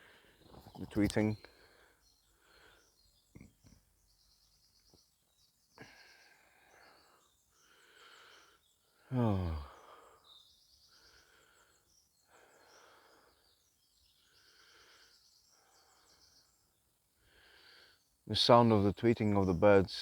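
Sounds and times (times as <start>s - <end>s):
birds chirping and trilling: 0.0s - 20.0s
man saying oh: 9.1s - 9.7s.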